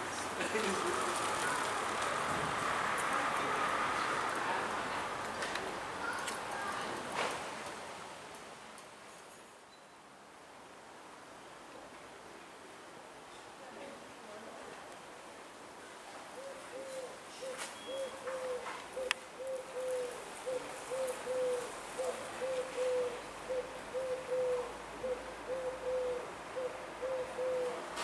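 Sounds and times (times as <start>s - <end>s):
bird cooing: 16.4s - 28.0s.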